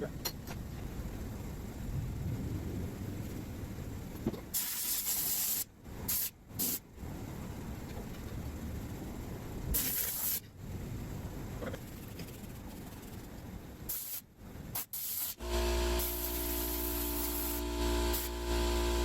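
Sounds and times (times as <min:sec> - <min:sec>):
compressed air hissing bursts: 0:04.5 - 0:06.8, 0:09.7 - 0:10.5, 0:13.9 - 0:18.5.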